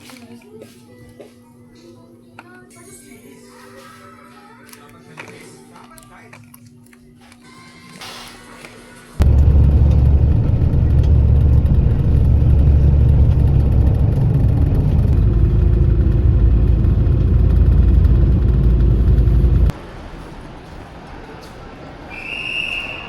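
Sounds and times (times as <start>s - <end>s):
loud low rumble: 9.2s - 19.8s.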